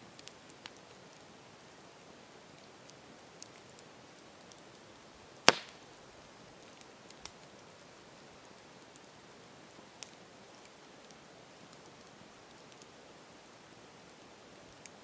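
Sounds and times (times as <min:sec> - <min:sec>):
campfire hissing and crackling: 0:00.0 - 0:15.0
loud pop of burning wood: 0:05.4 - 0:05.8.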